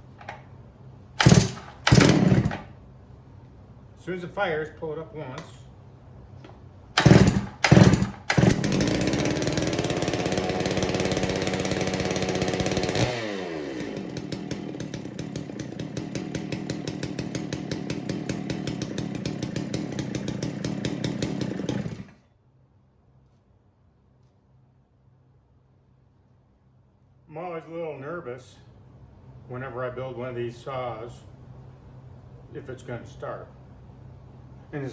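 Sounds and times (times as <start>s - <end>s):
chainsaw engine running: 1.2s - 2.7s, 7.0s - 22.2s.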